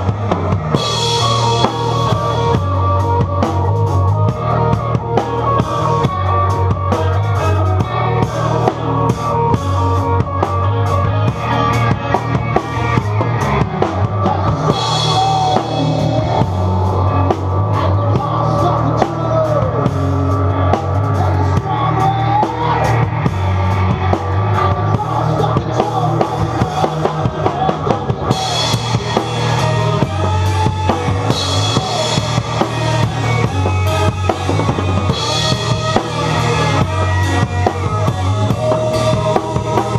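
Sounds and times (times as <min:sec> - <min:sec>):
rock band playing: 0:00.0 - 0:39.9
sustained low bass notes: 0:00.0 - 0:39.9.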